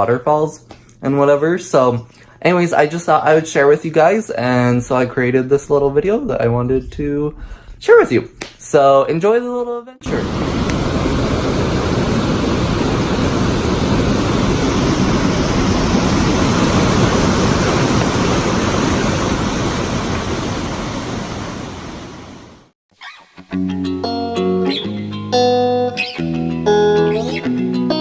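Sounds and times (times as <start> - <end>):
waterfall rushing: 10.1 - 22.6
plucked guitar notes: 23.4 - 28.0.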